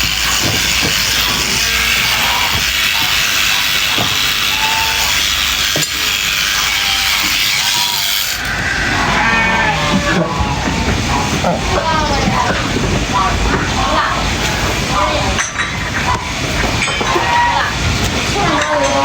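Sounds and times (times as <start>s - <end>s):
steady background noise: 0.0s - 19.0s
sheep bleating: 1.5s - 2.6s, 7.8s - 10.4s.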